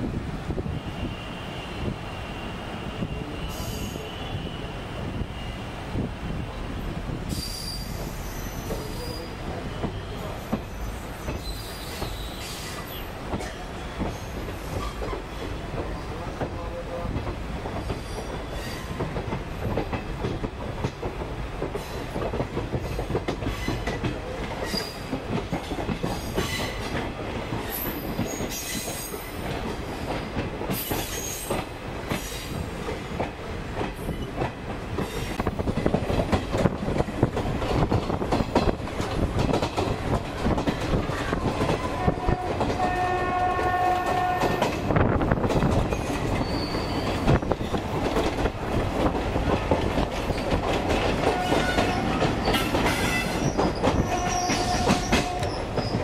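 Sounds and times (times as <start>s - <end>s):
train wheels rumbling: 0.0s - 56.0s
high wheel squeals: 7.3s - 9.4s, 10.0s - 13.1s, 46.4s - 47.3s, 51.4s - 56.0s.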